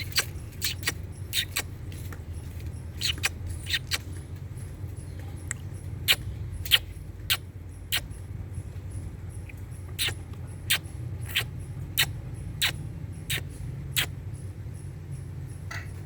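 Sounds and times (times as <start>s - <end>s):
parrot chirping: 0.0s - 4.7s, 5.5s - 8.2s, 10.0s - 14.1s
steady low hum: 0.0s - 16.0s.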